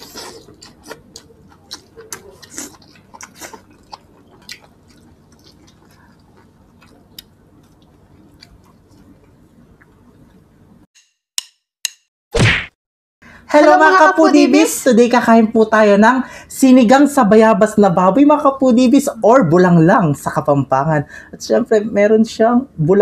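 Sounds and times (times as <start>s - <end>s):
wet chewing: 0.0s - 10.4s.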